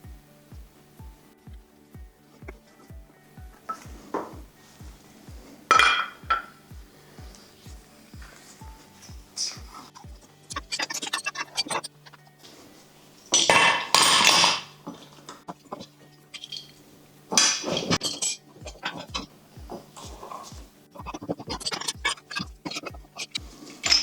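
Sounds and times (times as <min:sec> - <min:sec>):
background music with beat: 0:00.0 - 0:24.0
metal parts clinking: 0:16.3 - 0:16.8.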